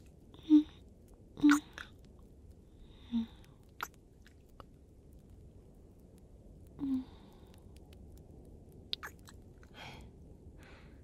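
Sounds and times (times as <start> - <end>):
wet kissing sounds: 1.4 - 1.9, 9.0 - 9.3.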